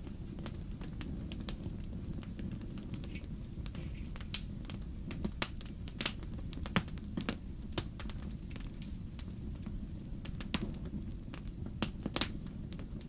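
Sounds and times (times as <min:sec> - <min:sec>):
fire crackling and popping: 0:00.0 - 0:13.0
flames rumbling: 0:00.0 - 0:13.0.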